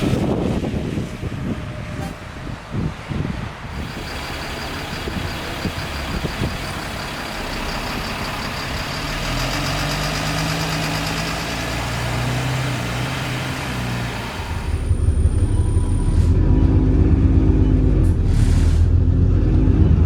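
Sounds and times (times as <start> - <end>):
bus engine running: 0.0 - 20.0
road noise: 0.0 - 20.0
high turbo whistle: 3.8 - 8.8.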